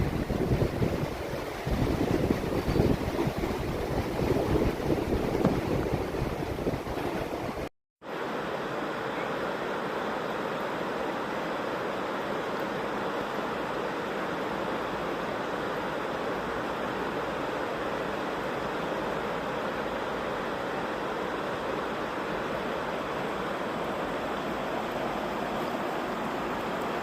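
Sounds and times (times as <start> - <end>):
wind buffeting microphone: 0.0 - 7.7
rushing river water: 0.0 - 27.0.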